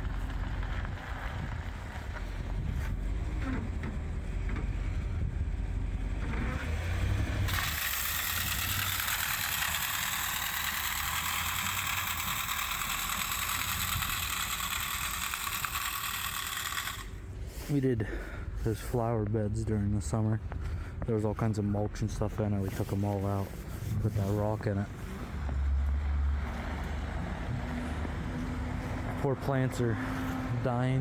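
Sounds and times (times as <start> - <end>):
truck engine rumble: 0.0 - 31.0
salt spreader hissing: 7.5 - 17.7.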